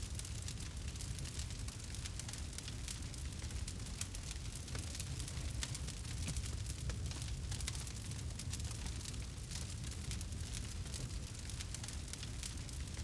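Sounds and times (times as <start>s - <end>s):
low rumble of flames: 0.0s - 13.0s
campfire crackling and popping: 0.2s - 13.0s.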